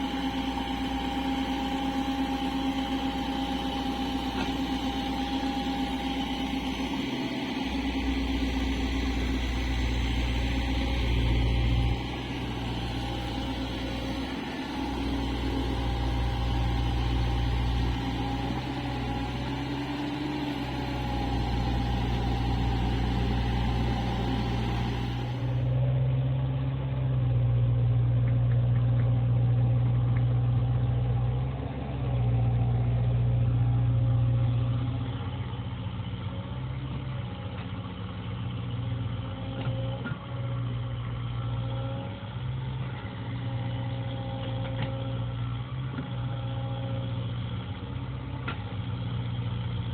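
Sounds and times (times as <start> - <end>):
excavator diesel engine running: 0.0 - 26.6.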